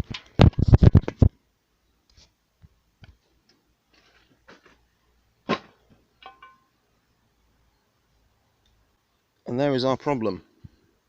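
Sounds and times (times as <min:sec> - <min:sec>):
metal clunk: 0:05.5 - 0:06.7
metallic clink: 0:06.2 - 0:06.7.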